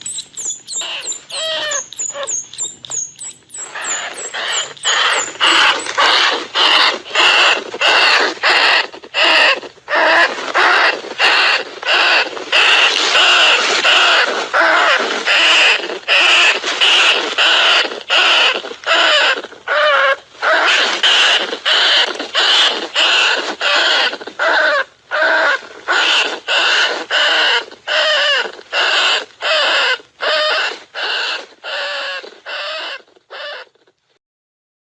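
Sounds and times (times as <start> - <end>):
mouse squeaks: 0.0 - 33.8.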